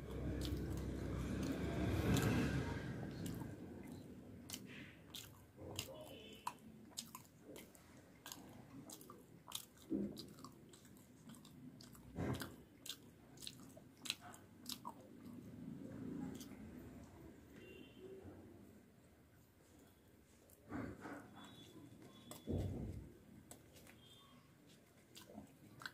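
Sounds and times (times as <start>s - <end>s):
person chewing crunchy food: 0.0s - 16.6s, 21.4s - 25.9s
wet mouth clicks: 0.1s - 15.5s.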